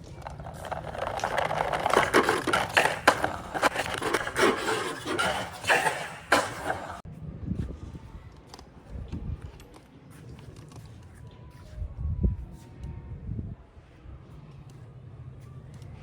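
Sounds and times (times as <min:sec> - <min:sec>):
plastic toy tractor rolling and scraping: 0:00.0 - 0:07.0.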